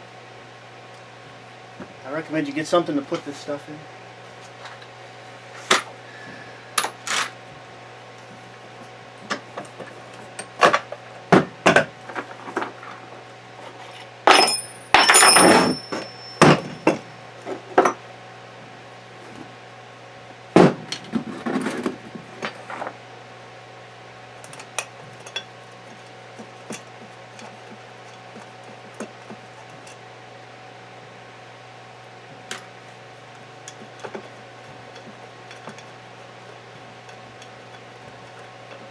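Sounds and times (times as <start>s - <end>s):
faint steady hum: 0.0s - 38.9s
metal parts and tools clinking: 13.8s - 17.1s
brief metallic ring: 14.3s - 16.8s.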